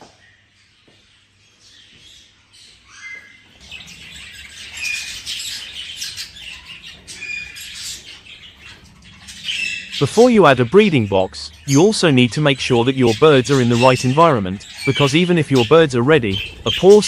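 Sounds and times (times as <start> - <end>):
budgerigars chattering and squawking: 0.0 - 17.0.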